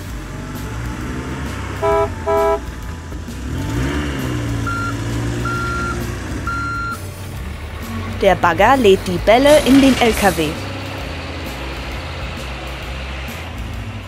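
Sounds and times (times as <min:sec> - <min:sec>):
truck engine rumble: 0:00.0 - 0:14.0
truck horn toots: 0:01.7 - 0:02.9, 0:04.5 - 0:07.0.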